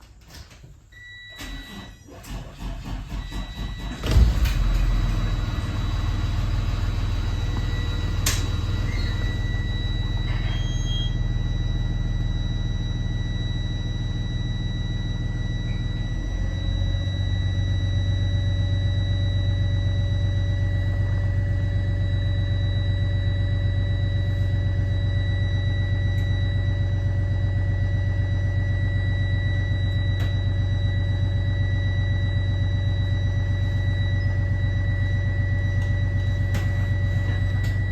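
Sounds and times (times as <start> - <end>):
high engine whine: 3.3 - 37.9
diesel bus engine idling: 4.1 - 15.5.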